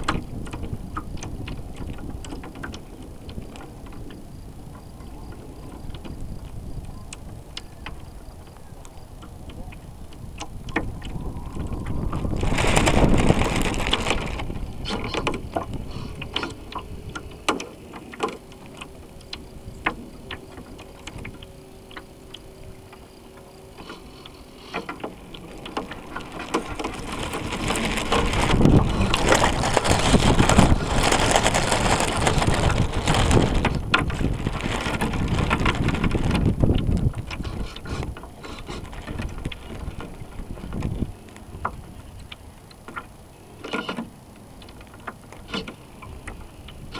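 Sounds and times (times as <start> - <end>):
wind on microphone: 0.0 - 17.6, 25.0 - 42.4
water rushing along boat hull: 0.0 - 46.9.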